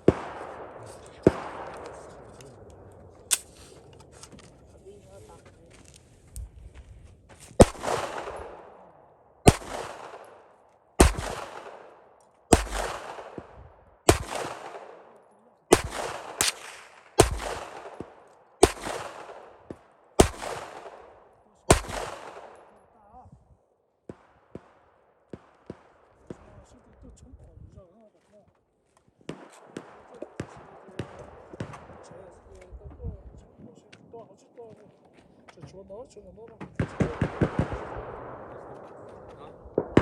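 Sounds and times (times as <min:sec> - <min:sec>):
rifle shots with echo: 0:00.0 - 0:04.2, 0:07.6 - 0:23.1, 0:24.0 - 0:27.0, 0:29.2 - 0:33.2, 0:36.7 - 0:40.0.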